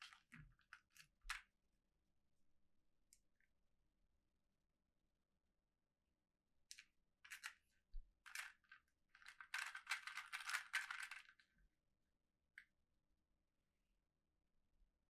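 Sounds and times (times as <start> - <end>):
toy packaging crinkling: 8.3 - 11.4.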